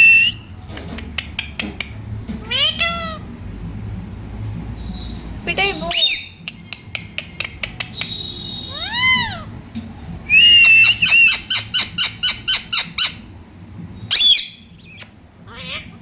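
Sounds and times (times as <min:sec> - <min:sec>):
parrot meow-like call: 0:02.4 - 0:03.2, 0:08.7 - 0:09.5, 0:15.5 - 0:16.0
parrot clicking chirps: 0:06.0 - 0:08.2
parrot clicks and whistles: 0:06.5 - 0:09.3.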